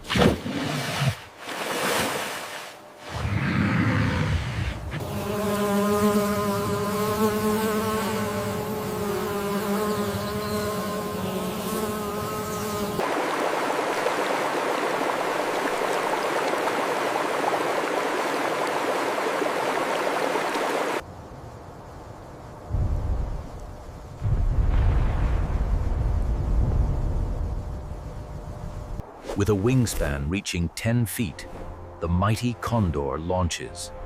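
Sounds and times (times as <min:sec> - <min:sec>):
flying insect buzzing: 0:03.1 - 0:21.0.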